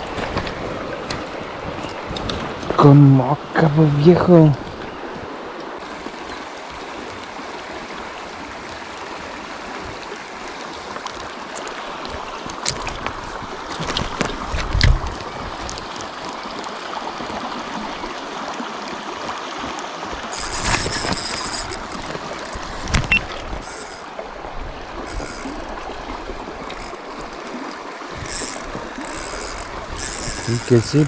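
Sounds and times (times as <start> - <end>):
river flowing: 0.0 - 31.0
high-pitched buzzing: 28.3 - 31.0.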